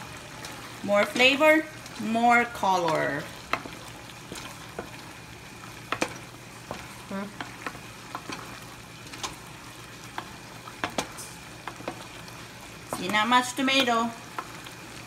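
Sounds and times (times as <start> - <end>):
meat and vegetables sizzling: 0.0 - 15.0
wooden spoon scraping a pan: 5.7 - 14.7.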